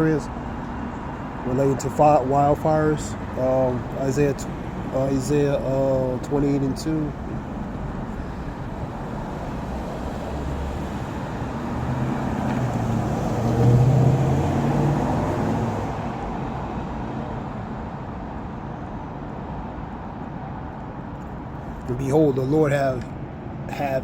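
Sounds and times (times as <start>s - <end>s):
vehicle engine: 0.0s - 17.6s
road noise: 0.0s - 24.0s.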